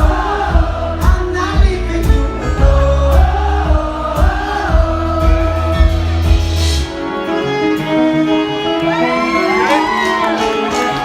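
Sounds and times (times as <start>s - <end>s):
heavy bass: 0.0s - 7.0s
live band music: 0.0s - 11.0s.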